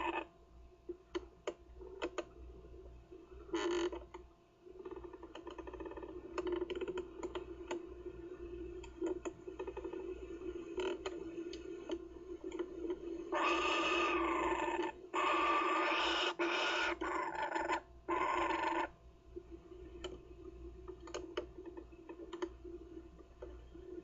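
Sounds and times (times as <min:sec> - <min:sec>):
steady low hum: 0:00.0 - 0:18.2, 0:18.8 - 0:24.0
kookaburra raspy calls: 0:13.3 - 0:18.9.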